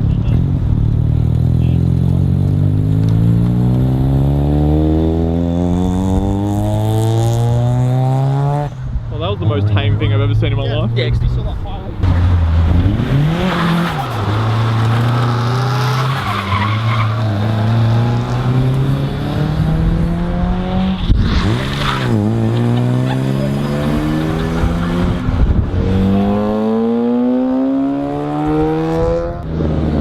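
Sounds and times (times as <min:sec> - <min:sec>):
car engine revving hard: 0:01.6 - 0:08.7, 0:12.1 - 0:30.0
tyres squealing and skidding: 0:12.1 - 0:19.2, 0:21.0 - 0:26.5.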